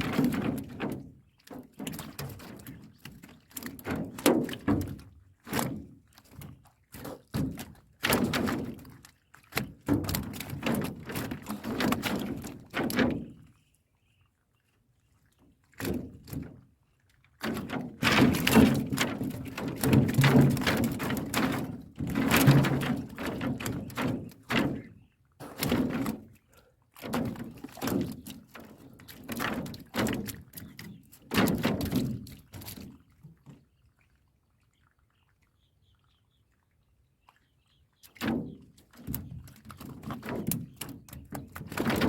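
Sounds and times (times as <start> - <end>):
knocking and thudding against boat: 0.0 - 9.0, 9.6 - 13.5, 17.4 - 26.4, 27.0 - 33.5, 38.2 - 42.0.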